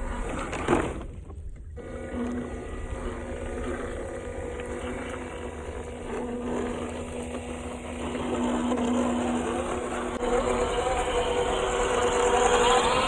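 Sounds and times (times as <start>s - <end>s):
toy truck motor whining: 1.8s - 13.0s.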